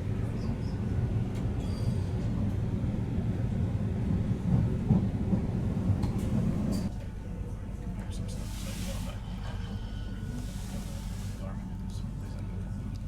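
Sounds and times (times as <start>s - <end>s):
train wheels rumbling on track: 0.0s - 6.9s.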